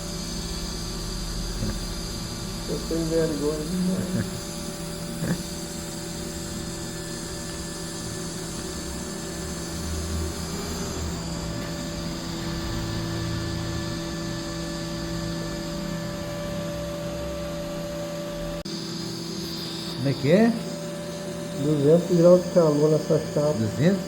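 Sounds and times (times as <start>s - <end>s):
welding equipment humming: 0.0s - 14.0s.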